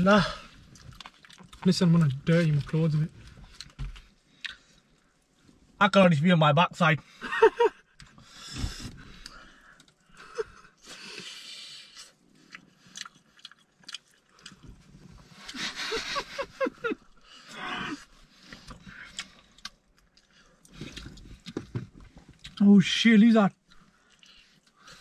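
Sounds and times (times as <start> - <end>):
chewing fried chicken: 0.5 - 5.0, 11.9 - 17.3, 18.2 - 22.6.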